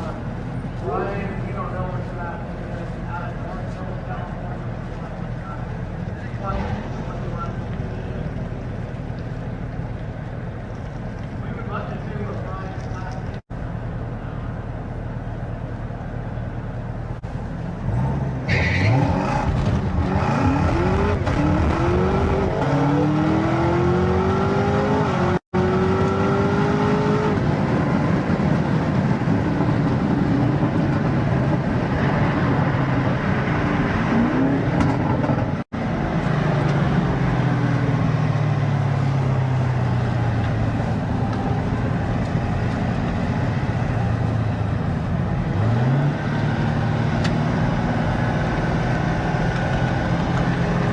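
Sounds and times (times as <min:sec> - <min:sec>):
car engine revving: 0:17.3 - 0:27.5, 0:30.5 - 0:50.9.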